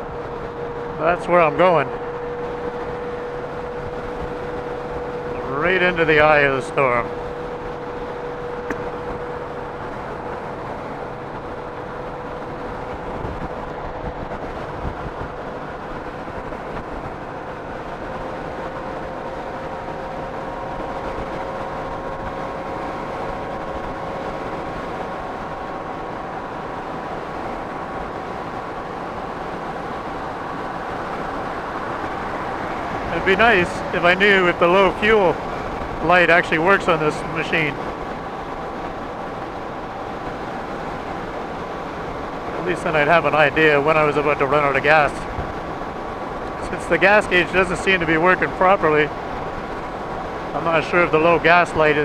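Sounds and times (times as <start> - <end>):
motorcycle engine whine: 0.0 - 52.0
wind and road noise: 0.0 - 52.0.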